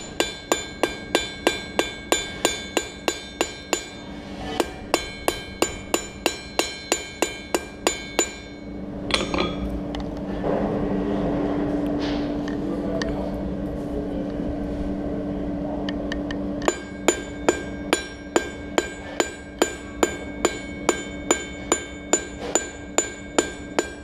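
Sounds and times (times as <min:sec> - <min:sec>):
hammer striking steel on anvil: 0:00.0 - 0:09.7, 0:16.6 - 0:24.0
low hum: 0:00.0 - 0:24.0.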